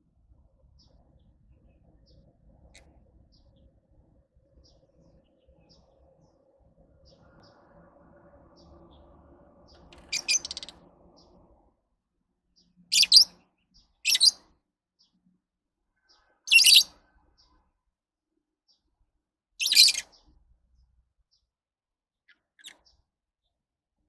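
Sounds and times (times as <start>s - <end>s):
lovebirds chirping: 4.4s - 11.6s, 12.6s - 15.2s, 16.1s - 16.9s, 19.6s - 20.4s.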